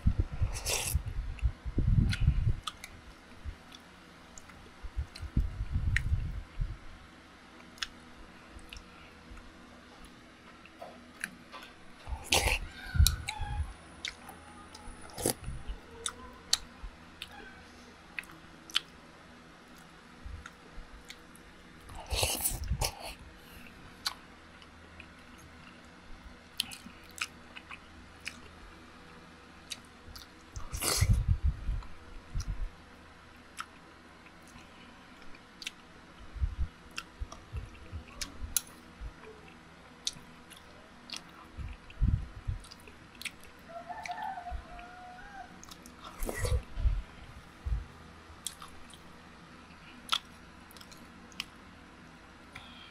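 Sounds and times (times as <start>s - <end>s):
person chewing: 0.5s - 1.0s, 2.0s - 3.0s, 7.6s - 8.0s, 11.2s - 13.4s, 15.0s - 17.4s, 18.2s - 18.9s, 21.8s - 23.2s, 24.0s - 25.9s, 26.5s - 28.5s, 29.6s - 31.2s, 33.5s - 35.8s, 39.5s - 42.0s, 42.6s - 44.2s, 45.6s - 46.7s, 48.4s - 49.1s, 49.7s - 51.5s.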